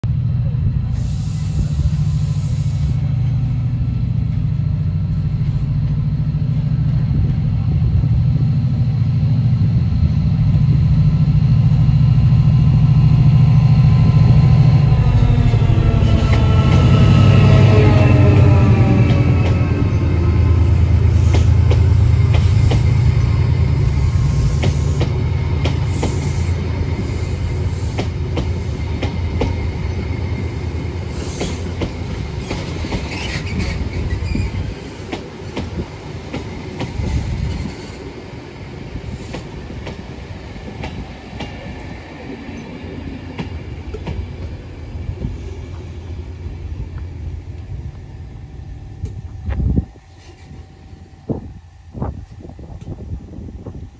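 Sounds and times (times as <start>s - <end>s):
diesel locomotive engine running: 0.0s - 53.9s
train wheel squeal: 14.0s - 35.2s, 49.6s - 51.1s.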